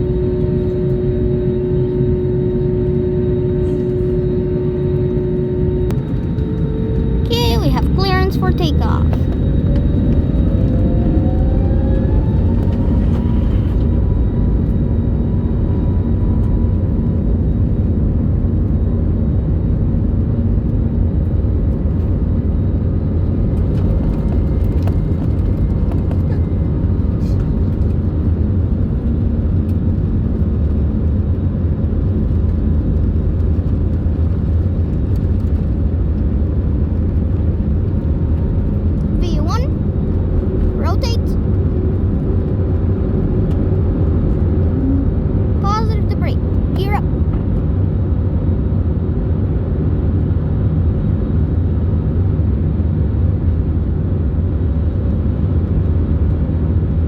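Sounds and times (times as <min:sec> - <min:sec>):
jet engines spooling up: 0:00.0 - 0:15.0.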